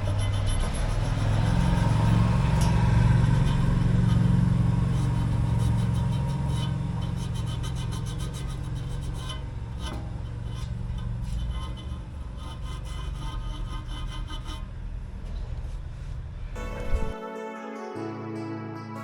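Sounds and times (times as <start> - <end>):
engine humming: 0.0 - 13.2.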